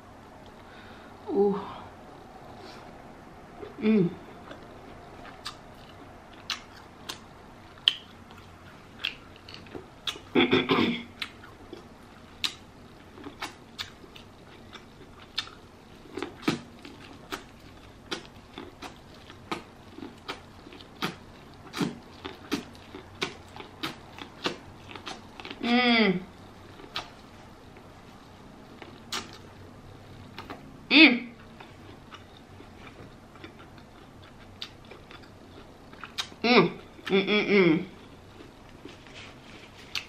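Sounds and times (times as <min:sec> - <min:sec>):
wet chewing and lip smacks: 0:04.4 - 0:10.3, 0:11.2 - 0:25.6, 0:26.7 - 0:27.9, 0:28.7 - 0:29.5, 0:31.4 - 0:36.4.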